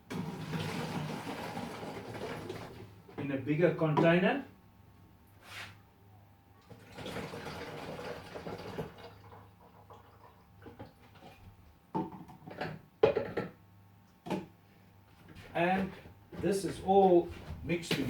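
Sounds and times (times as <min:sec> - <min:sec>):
liquid pouring into plastic container: 0:00.1 - 0:02.9, 0:06.6 - 0:11.4
containers knocking and clunking: 0:11.9 - 0:13.6.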